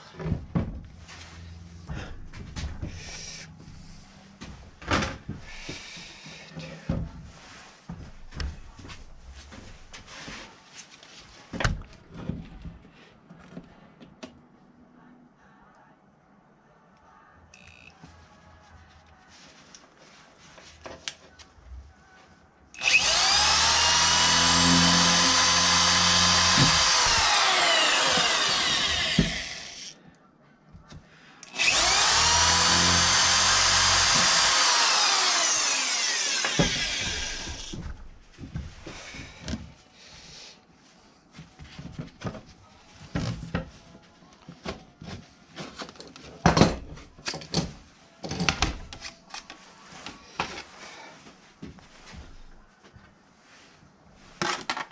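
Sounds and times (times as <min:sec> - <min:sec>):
power tool motor whining: 0:22.8 - 0:30.0, 0:31.5 - 0:37.8.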